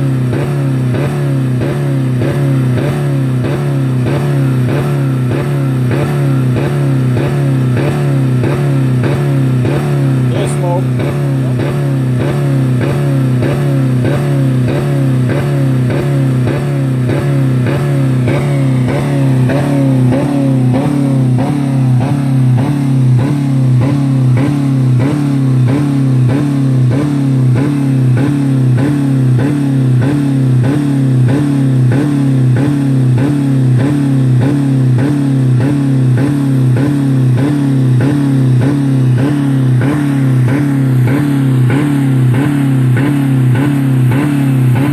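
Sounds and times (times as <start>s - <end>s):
car engine on rev limiter: 0.0s - 44.9s.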